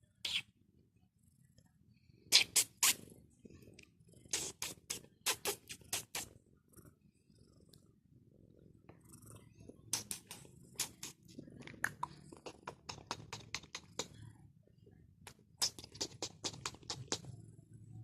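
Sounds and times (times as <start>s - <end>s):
quick clicks and ticks: 9.9s - 11.2s, 11.9s - 14.2s, 15.3s - 17.3s
low steady rumble: 17.2s - 18.0s.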